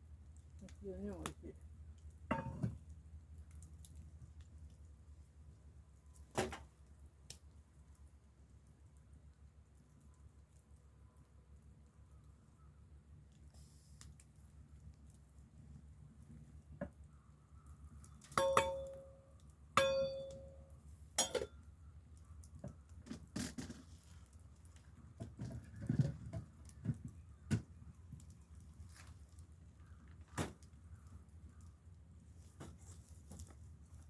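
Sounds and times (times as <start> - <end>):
light metal clinks and knocks: 2.3 - 2.8, 18.2 - 21.6
ringing metal strikes: 18.4 - 19.2, 19.8 - 21.5.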